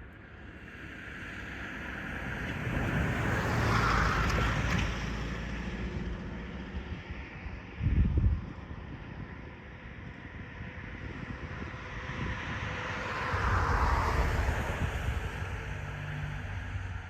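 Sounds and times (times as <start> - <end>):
wind gust on microphone: 2.2 - 17.0
vehicle passing: 12.7 - 17.0.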